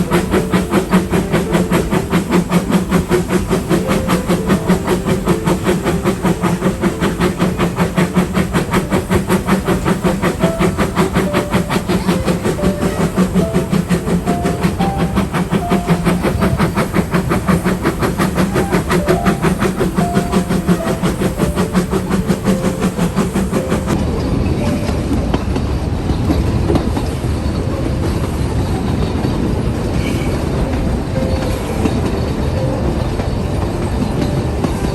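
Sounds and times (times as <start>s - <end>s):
steam train puffing: 0.0s - 24.0s.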